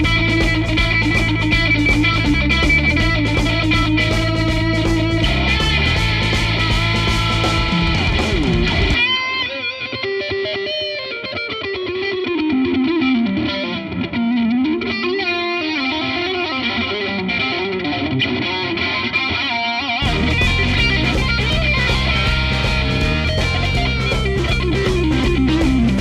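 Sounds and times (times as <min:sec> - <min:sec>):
backing band: 0:00.0 - 0:09.1, 0:20.0 - 0:26.0
distorted electric guitar lead: 0:00.0 - 0:26.0.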